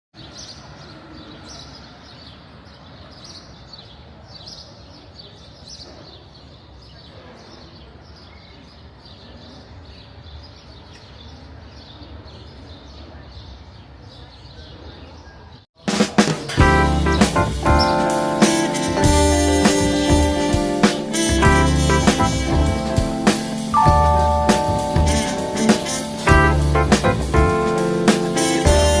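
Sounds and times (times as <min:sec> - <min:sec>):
birds chirping: 0:16.6 - 0:29.0.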